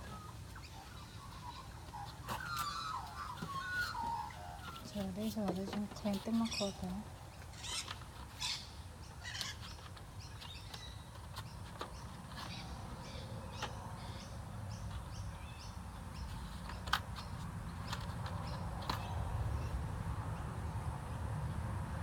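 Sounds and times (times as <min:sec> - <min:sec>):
birds chirping: 0:00.0 - 0:21.6.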